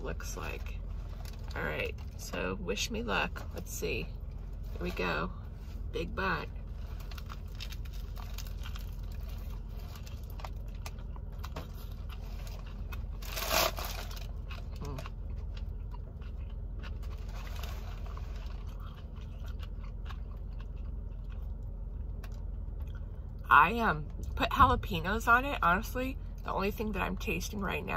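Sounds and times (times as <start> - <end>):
steady low hum: 0.0 - 27.9
crunchy chewing: 6.7 - 23.4.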